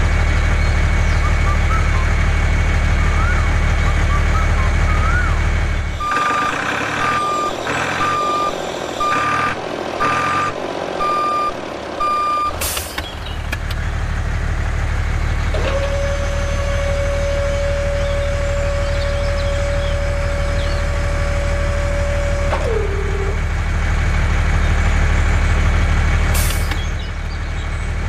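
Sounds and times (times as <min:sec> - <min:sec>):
reversing alarm beeping: 0:06.0 - 0:12.7.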